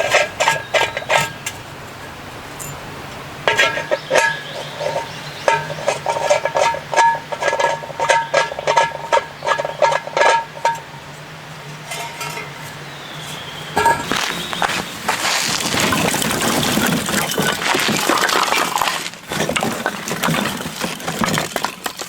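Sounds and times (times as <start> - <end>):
metal utensil tapping cookware: 11.8 - 12.6.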